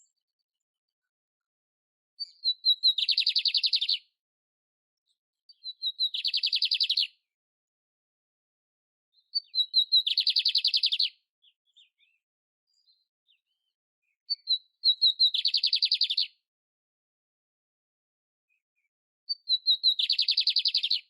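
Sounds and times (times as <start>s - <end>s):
canary singing with trills: 2.2s - 4.1s, 5.5s - 7.2s, 9.2s - 13.7s, 14.3s - 16.4s, 19.3s - 21.0s.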